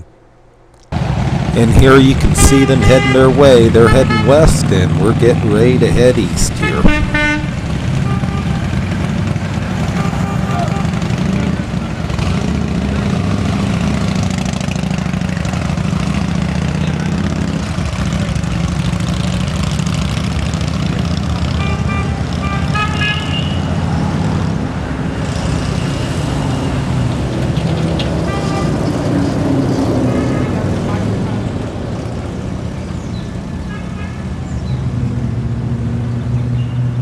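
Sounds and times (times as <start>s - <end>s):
wind noise: 6.3s - 7.5s
motorcycle engine running: 6.9s - 23.3s.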